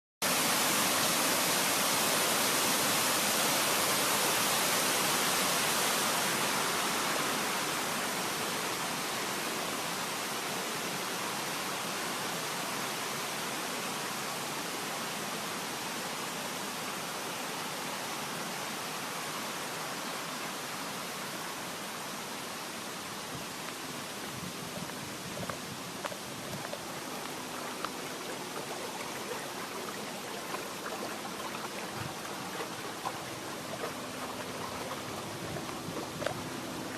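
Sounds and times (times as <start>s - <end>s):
waterfall rushing: 21.9s - 36.9s.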